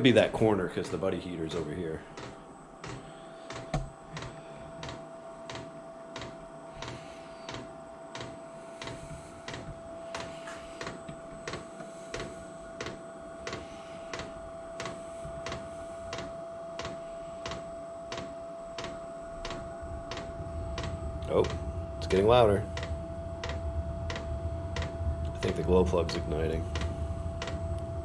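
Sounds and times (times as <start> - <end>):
fan whine: 0.0 - 28.0.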